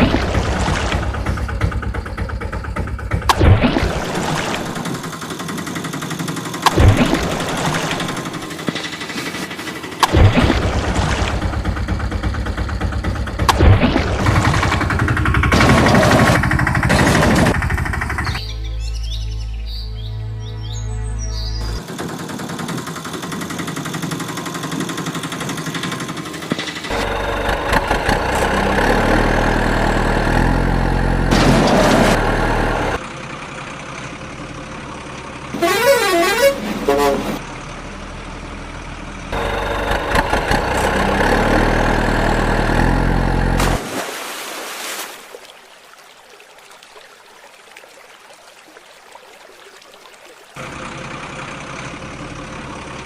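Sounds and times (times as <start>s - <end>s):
vehicle engines running: 0.0s - 18.9s, 21.0s - 43.9s, 50.4s - 53.0s
horns honking: 35.5s - 37.5s
warbling siren-like horn: 35.6s - 37.4s.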